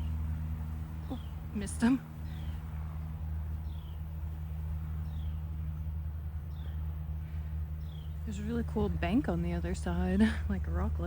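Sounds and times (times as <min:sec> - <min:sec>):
steady low hum: 0:00.0 - 0:11.0
bird chirping: 0:00.8 - 0:09.0.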